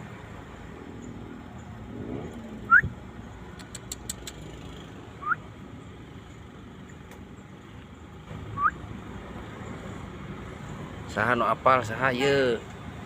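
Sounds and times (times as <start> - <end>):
duck whistled calls: 2.7 - 2.9, 5.2 - 5.4, 8.6 - 8.8.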